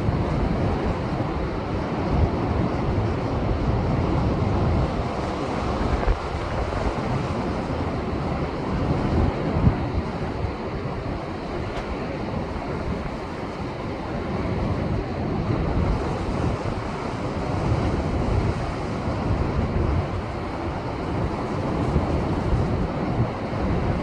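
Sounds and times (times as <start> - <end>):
wind buffeting microphone: 0.0 - 24.0
surf breaking on rocky shore: 4.8 - 15.2.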